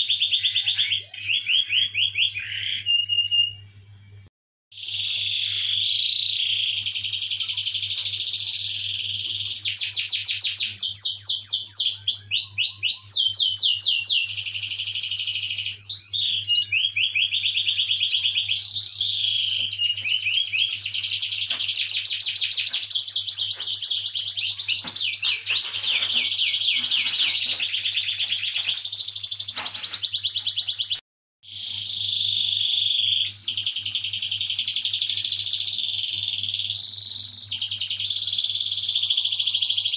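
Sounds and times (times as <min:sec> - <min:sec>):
canary singing trills: 0:00.0 - 0:03.8, 0:04.8 - 0:39.9.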